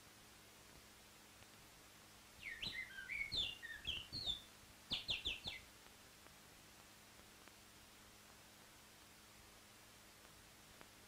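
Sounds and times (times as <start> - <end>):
faint steady hum: 0.0 - 11.0
bird twittering: 2.4 - 5.6.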